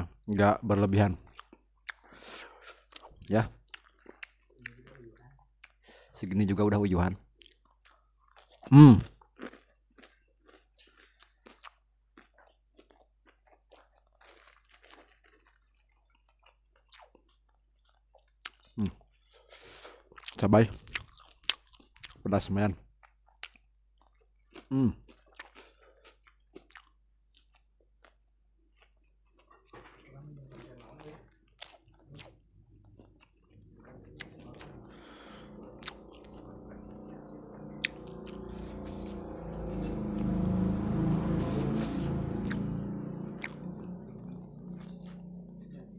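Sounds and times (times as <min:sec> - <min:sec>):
person chewing crunchy food: 0:01.2 - 0:06.2, 0:07.3 - 0:39.7
low hum: 0:33.6 - 0:45.9.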